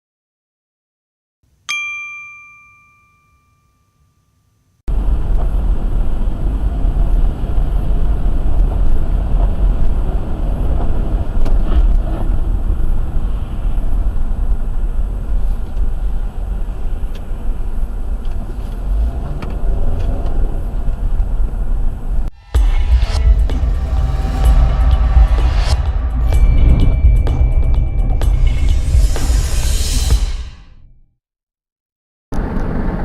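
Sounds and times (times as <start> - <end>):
car engine and road noise: 4.9 - 30.2, 32.4 - 33.0.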